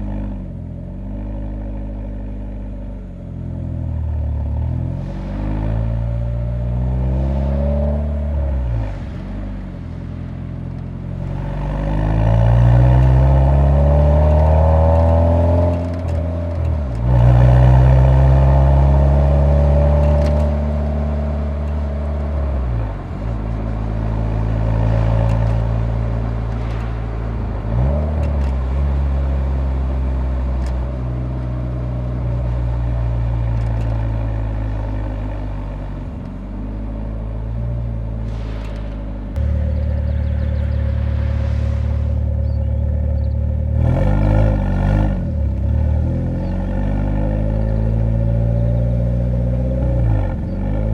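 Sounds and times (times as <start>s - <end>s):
car engine revving through gears: 4.6s - 8.9s, 11.2s - 34.4s, 37.9s - 50.9s.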